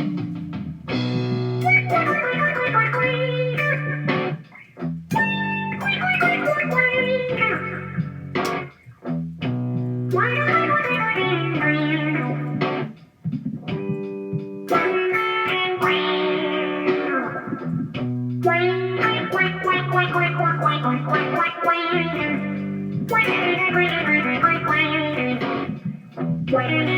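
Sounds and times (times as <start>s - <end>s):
distorted electric guitar: 0.0s - 26.9s.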